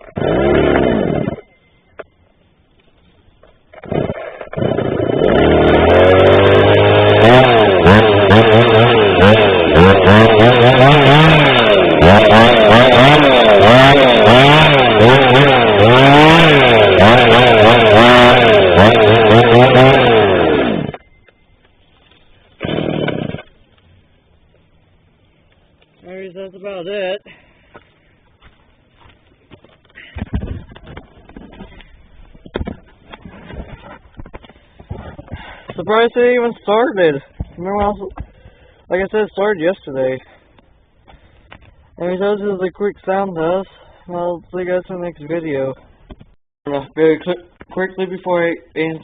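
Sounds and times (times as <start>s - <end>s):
chainsaw revving: 0.0s - 1.5s, 3.7s - 21.0s, 22.6s - 23.6s.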